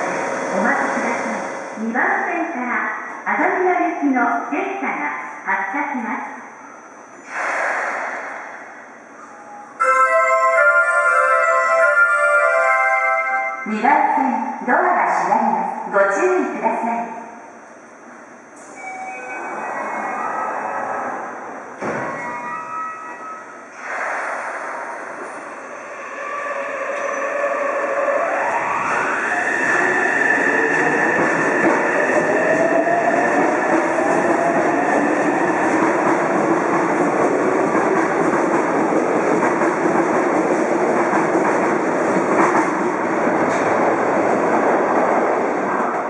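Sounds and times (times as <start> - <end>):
train running noise: 18.1 - 46.0.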